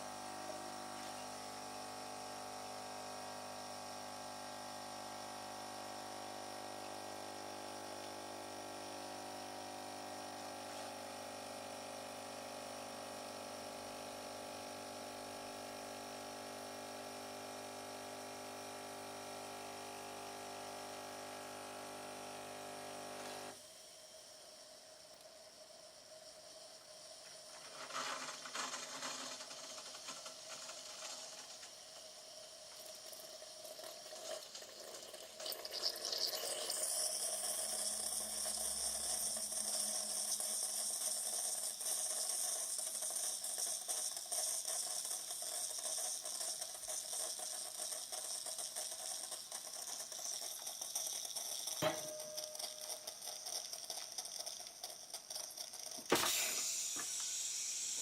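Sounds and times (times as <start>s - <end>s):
coffee machine pump: 0.0s - 58.0s
hot water and steam hissing: 23.2s - 58.0s.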